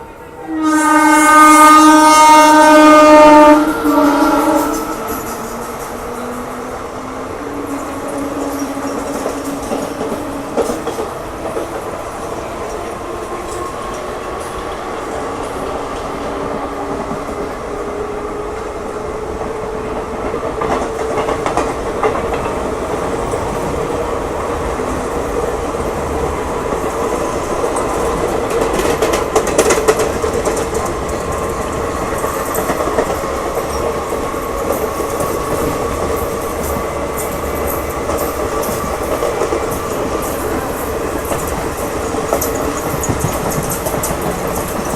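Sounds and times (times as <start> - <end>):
train rumbling on rails: 0.0 - 44.9
wheel clatter over rail joints: 27.6 - 44.9.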